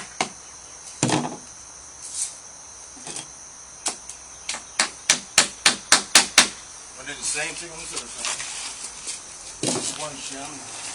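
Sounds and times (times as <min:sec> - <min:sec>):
sharp knocks: 0:03.8 - 0:06.6.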